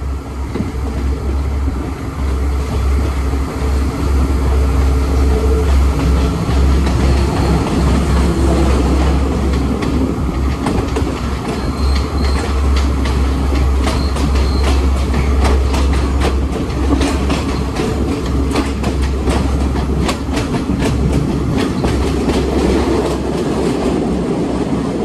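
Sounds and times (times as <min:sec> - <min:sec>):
train rumbling on rails: 0:00.0 - 0:25.0
wheels clicking over rail joints: 0:05.6 - 0:24.8
faint high wheel squeal: 0:11.5 - 0:12.6, 0:13.8 - 0:14.9.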